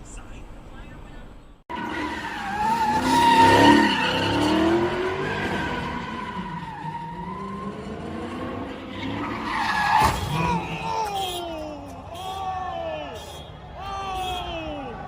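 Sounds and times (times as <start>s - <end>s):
engine revving: 1.7s - 9.4s
car tyres squealing: 1.7s - 15.0s.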